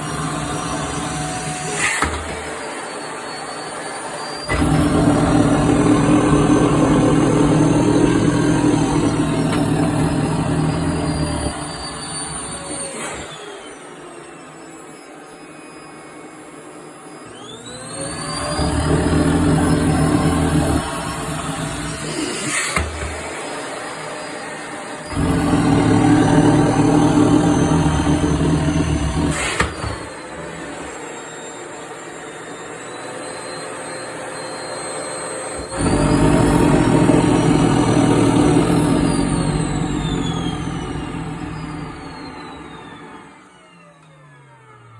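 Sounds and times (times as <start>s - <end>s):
vacuum cleaner motor whine: 0.0s - 44.9s
fabric sucked into vacuum nozzle: 4.4s - 13.3s, 25.1s - 30.8s, 35.6s - 42.2s.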